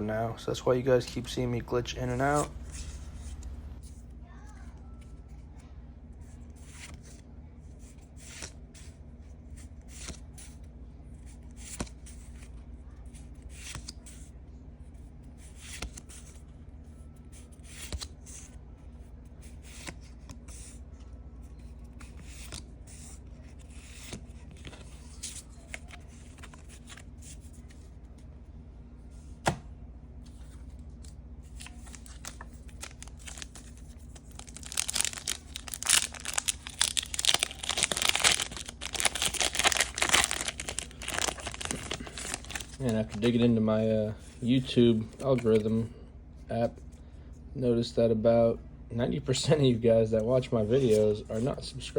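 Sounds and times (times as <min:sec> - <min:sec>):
steady low hum: 0:00.0 - 0:51.9
hands handling packaging: 0:31.5 - 0:43.4
packaging crinkling: 0:31.6 - 0:43.4.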